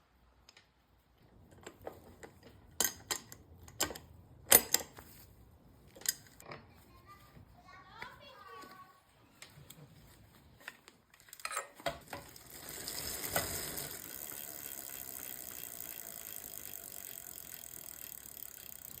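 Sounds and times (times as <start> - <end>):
bicycle drivetrain clicks and knocks: 1.5 - 5.1, 10.6 - 19.0
bicycle drivetrain whirring: 11.3 - 19.0.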